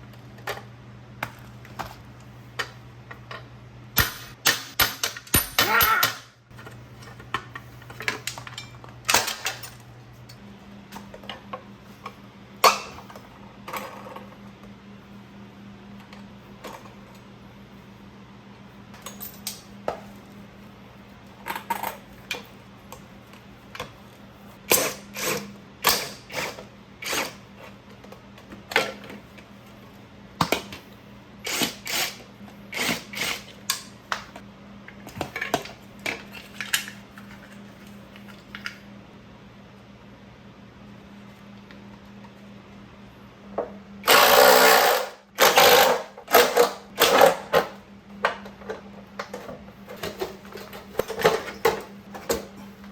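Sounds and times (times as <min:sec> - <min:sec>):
steady low hum: 0:00.0 - 0:46.2
metal parts clinking: 0:04.0 - 0:06.3.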